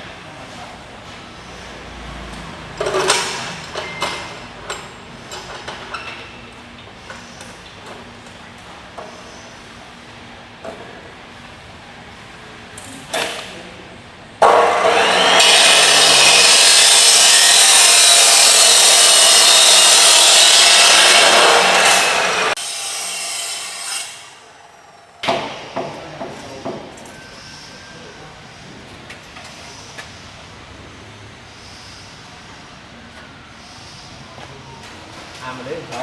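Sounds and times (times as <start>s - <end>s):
power tool whining: 14.4s - 24.4s.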